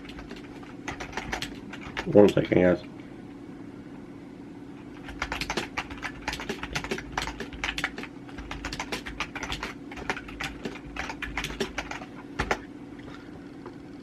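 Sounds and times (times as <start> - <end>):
keyboard typing: 0.0 - 2.5, 5.0 - 12.6
steady low hum: 0.0 - 14.0.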